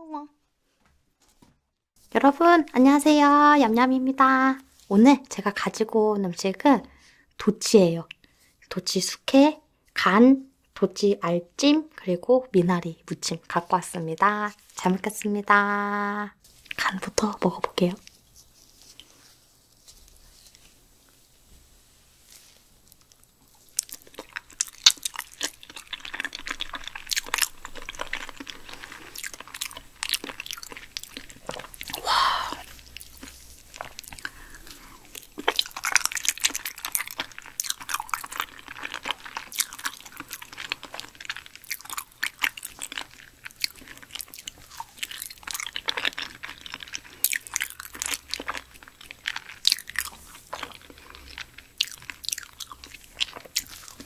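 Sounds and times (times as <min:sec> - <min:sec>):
chewing and mouth clicks: 0:22.8 - 0:54.0.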